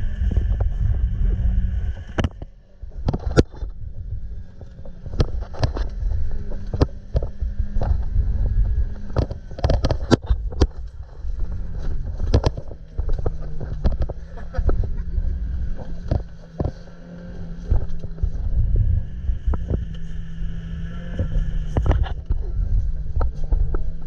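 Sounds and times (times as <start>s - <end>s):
car engine running hard: 0.0s - 24.0s
wind and road noise: 0.0s - 24.0s
sharp clicks and knocks: 1.9s - 18.6s.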